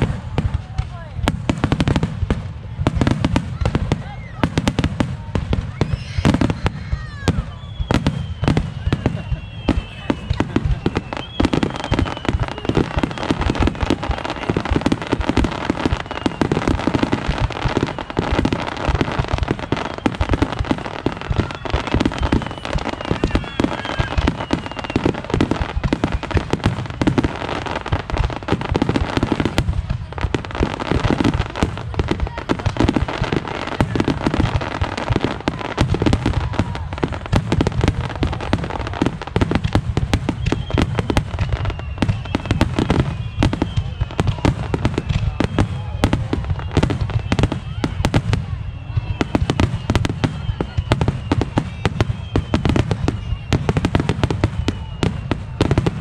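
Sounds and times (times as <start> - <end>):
fireworks whistling: 0.0 - 56.0.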